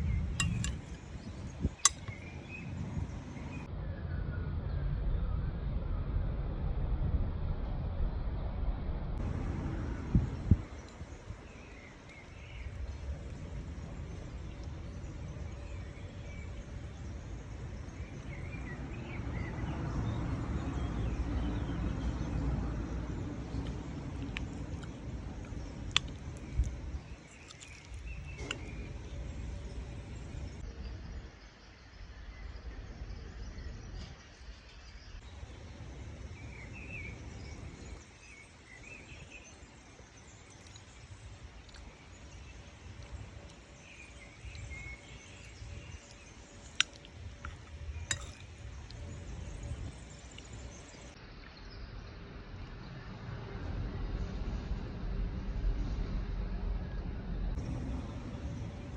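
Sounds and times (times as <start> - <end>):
low rumble: 0.0 - 31.2, 52.9 - 58.9.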